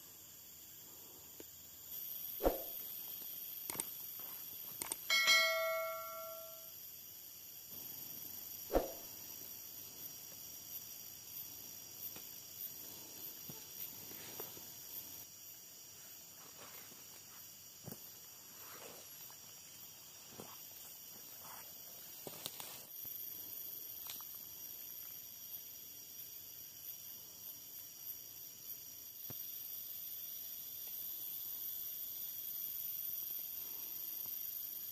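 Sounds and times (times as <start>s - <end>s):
high-pitched insect drone: 0.0s - 34.9s.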